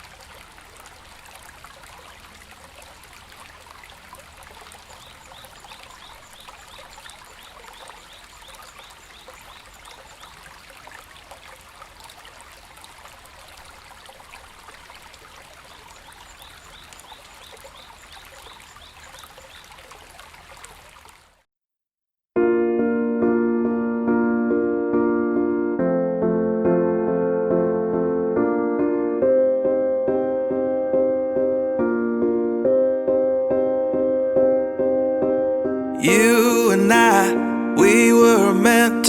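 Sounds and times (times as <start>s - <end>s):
babbling stream: 0.0s - 21.5s, 36.0s - 39.0s.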